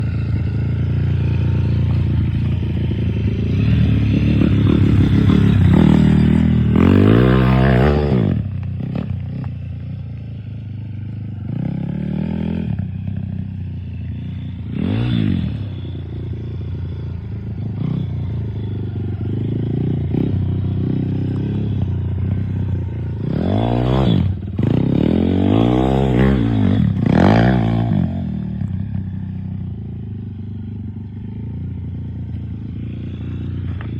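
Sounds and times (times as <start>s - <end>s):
dirt bike engine revving: 0.0s - 9.4s, 14.2s - 28.5s.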